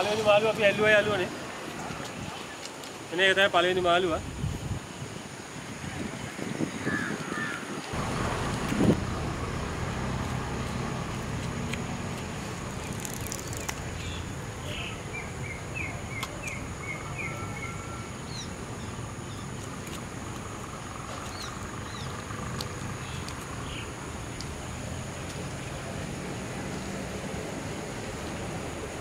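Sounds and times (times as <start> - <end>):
steady low rumble: 8.0 - 13.0.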